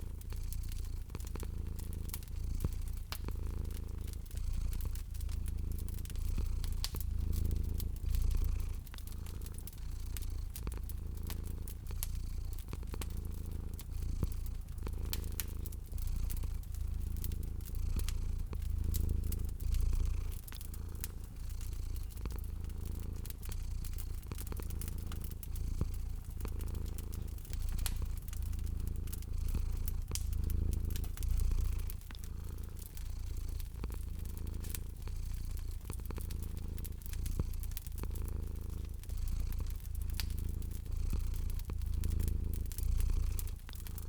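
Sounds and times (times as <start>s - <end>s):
cat purring: 0.0s - 44.0s
wood fire crackling: 0.0s - 44.0s.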